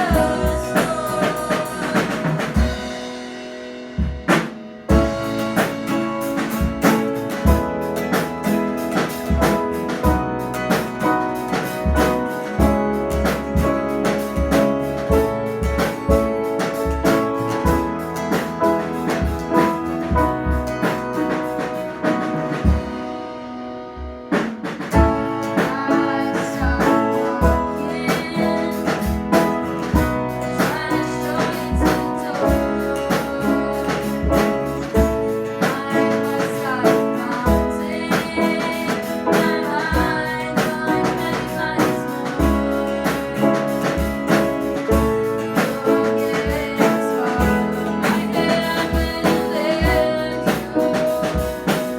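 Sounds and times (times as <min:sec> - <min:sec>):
person singing: 0:00.0 - 0:03.2, 0:24.9 - 0:51.9
sharp drum hit: 0:00.0 - 0:23.2
band playing a song: 0:00.0 - 0:51.9.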